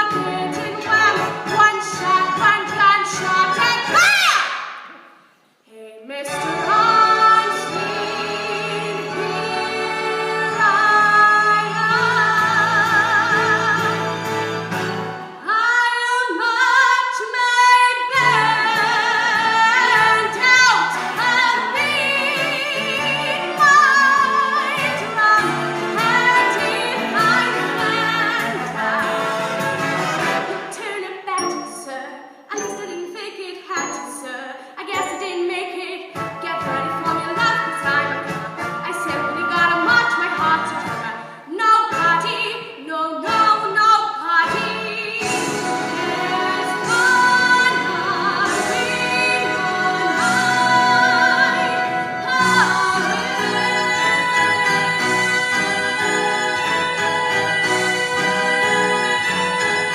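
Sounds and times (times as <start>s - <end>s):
woman singing with vibrato: 0.0s - 4.6s, 5.7s - 29.4s, 30.5s - 59.9s
instrumental accompaniment: 18.1s - 41.3s, 44.4s - 59.9s.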